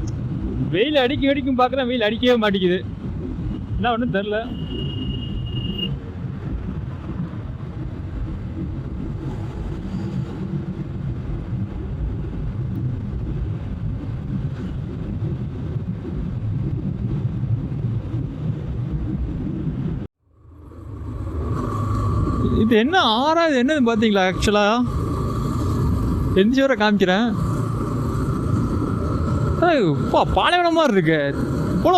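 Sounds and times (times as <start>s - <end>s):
wind on microphone: 4.5s - 23.1s
motorcycle engine running: 24.3s - 30.2s.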